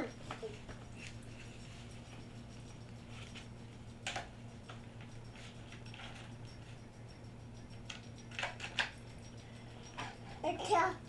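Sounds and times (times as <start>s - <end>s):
toy tractor tapping and clicking: 4.0s - 4.8s, 7.7s - 9.0s.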